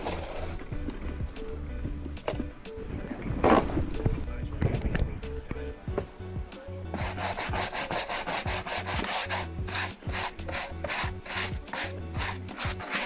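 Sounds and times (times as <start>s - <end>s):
rapid scrubbing strokes: 0.0s - 0.7s, 6.9s - 13.0s.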